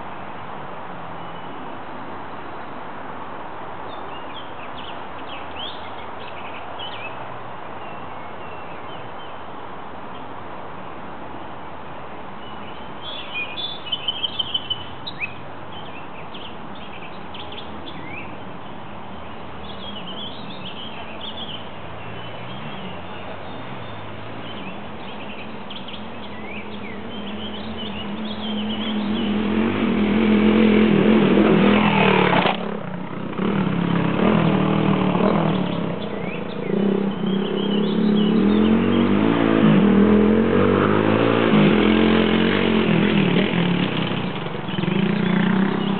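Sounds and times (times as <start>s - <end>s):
birds chirping: 3.8s - 9.5s, 12.4s - 45.9s
motorcycle engine revving: 26.8s - 45.9s.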